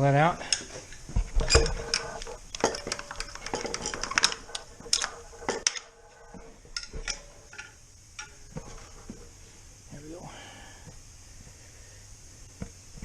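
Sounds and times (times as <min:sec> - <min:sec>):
metal parts and tools clinking: 0:00.5 - 0:09.1.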